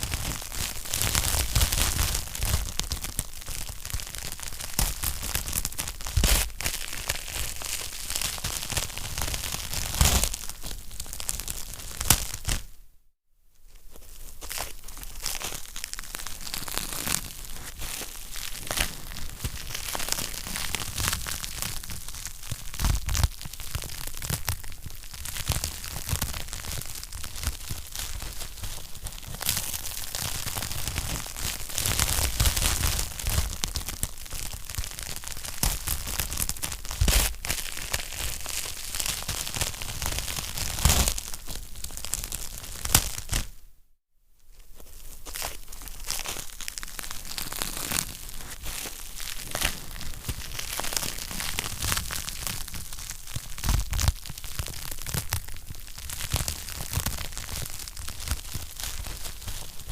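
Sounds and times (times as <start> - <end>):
wood fire crackling: 45.0 - 59.9.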